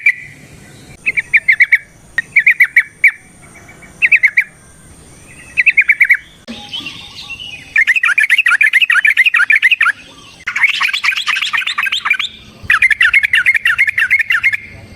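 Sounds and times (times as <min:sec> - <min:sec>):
bird singing chattering runs: 0:05.2 - 0:14.9.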